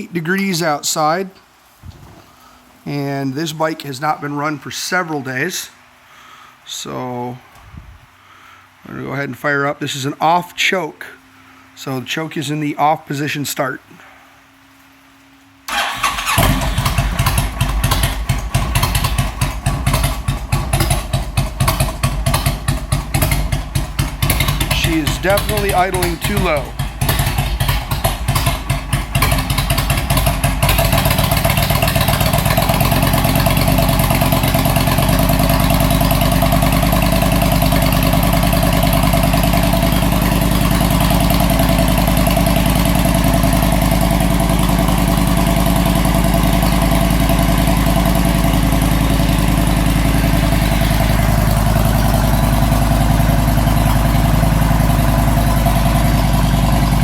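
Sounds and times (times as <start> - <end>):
motorcycle engine idling: 15.7 - 57.0.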